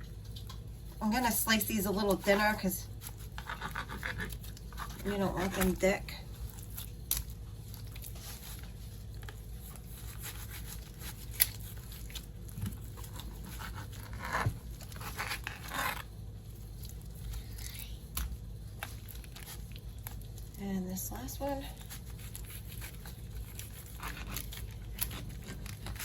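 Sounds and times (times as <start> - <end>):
steady low hum: 0.0 - 26.0
knife scraping on cutting board: 3.0 - 5.8.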